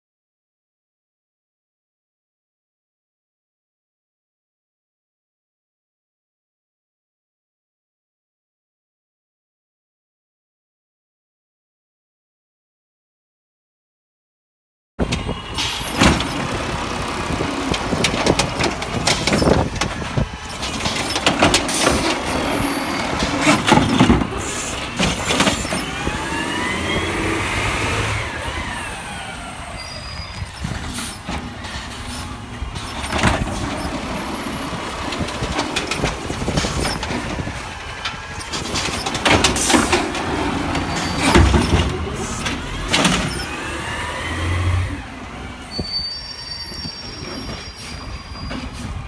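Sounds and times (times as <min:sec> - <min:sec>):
garbage truck running: 0:15.0 - 0:49.0
clanks and knocks: 0:15.9 - 0:26.2, 0:38.0 - 0:43.5.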